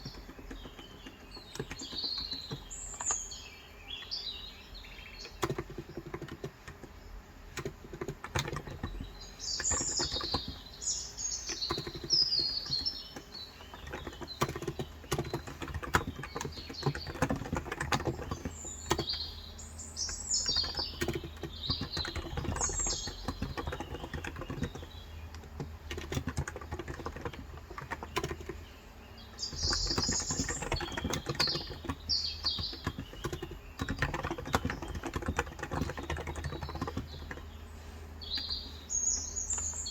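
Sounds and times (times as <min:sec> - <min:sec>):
keyboard typing clicks: 0:00.0 - 0:03.3, 0:05.1 - 0:19.4, 0:20.0 - 0:37.6
birds chirping: 0:00.0 - 0:39.9.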